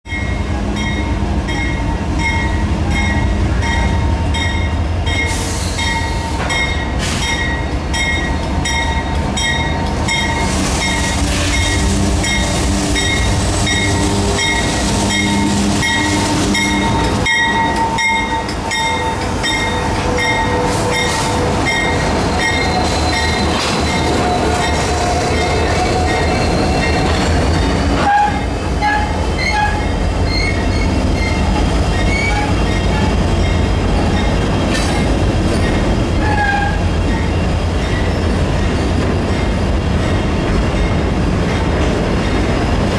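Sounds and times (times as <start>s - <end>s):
locomotive bell ringing: 0.1s - 28.1s
diesel locomotive engine rumble: 0.1s - 42.9s.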